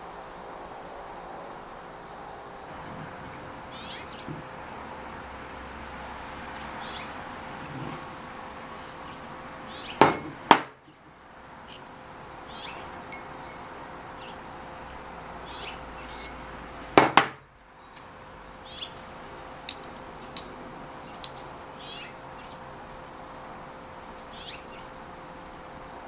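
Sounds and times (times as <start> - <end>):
birds chirping: 2.2 - 25.7
metal on metal knocks: 10.0 - 11.0, 17.0 - 18.2.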